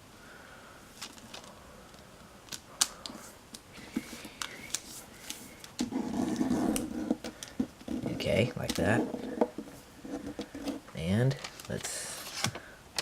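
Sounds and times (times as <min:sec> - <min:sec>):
paper rustle: 0:11.3 - 0:12.7.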